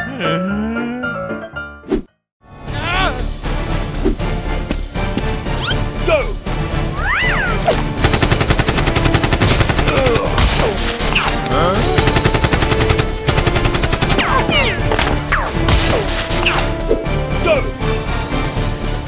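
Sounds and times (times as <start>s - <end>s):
background music: 0.0s - 19.0s
automatic gunfire: 8.0s - 11.3s.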